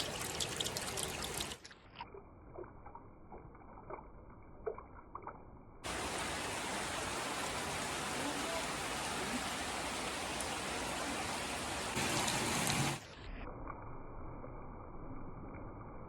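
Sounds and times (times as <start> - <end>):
scattered drips: 0.0 - 7.0
heavy rain splashing: 5.9 - 13.1.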